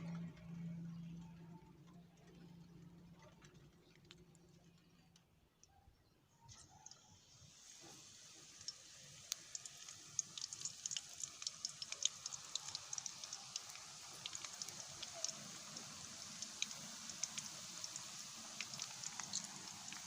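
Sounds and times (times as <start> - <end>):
food sizzling in hot oil: 7.5 - 20.0.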